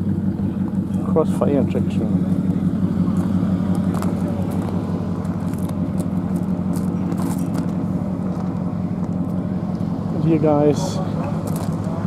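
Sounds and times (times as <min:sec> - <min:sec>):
car engine idling: 0:00.0 - 0:12.0
footsteps on gravel: 0:03.1 - 0:07.8, 0:11.4 - 0:11.9.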